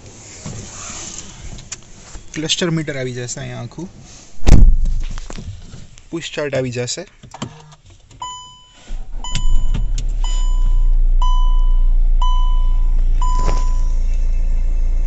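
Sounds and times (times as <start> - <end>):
dashboard warning chime: 8.2 - 14.1
diesel engine starting and idling: 8.2 - 15.0.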